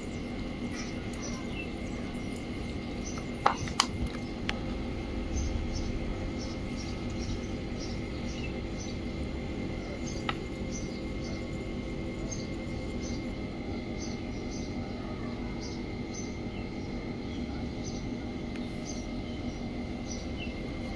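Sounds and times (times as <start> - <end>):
steady machine hum: 0.0 - 20.9.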